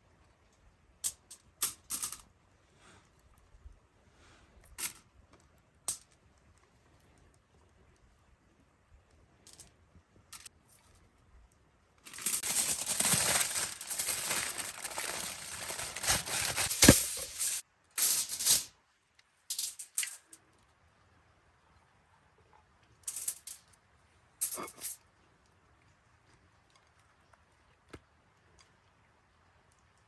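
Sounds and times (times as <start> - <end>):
rustling and rattling: 12.1 - 18.7.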